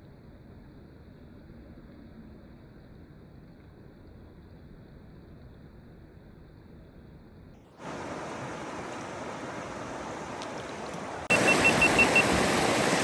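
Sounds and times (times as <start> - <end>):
mountain river rushing: 7.8 - 13.0
quick high beeps: 11.3 - 12.4.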